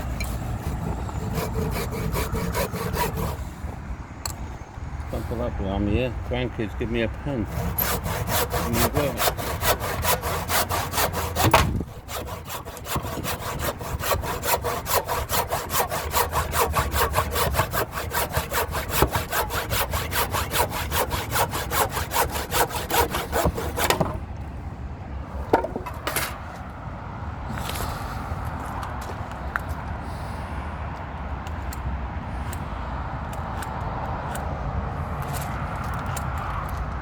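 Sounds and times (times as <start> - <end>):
handsaw cutting timber: 0.0 - 3.8, 7.3 - 24.2
sharp knocks: 11.3 - 13.4.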